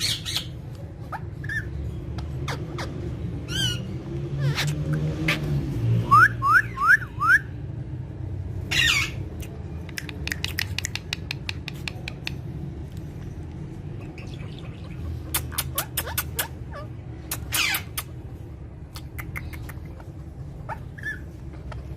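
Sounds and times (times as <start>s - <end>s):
parrot whistling and squawking: 0.0s - 7.6s, 8.7s - 9.2s, 14.0s - 18.2s, 19.1s - 21.9s
sharp clicks: 9.4s - 12.5s.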